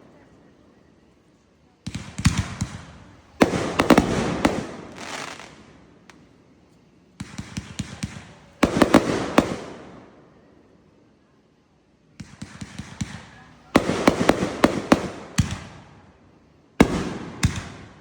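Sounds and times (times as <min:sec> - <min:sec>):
firework crack: 0:01.8 - 0:06.4, 0:07.1 - 0:10.4, 0:12.2 - 0:18.0
fireworks crackling bangs: 0:01.9 - 0:06.3, 0:07.1 - 0:10.1, 0:12.2 - 0:16.0, 0:16.8 - 0:18.0.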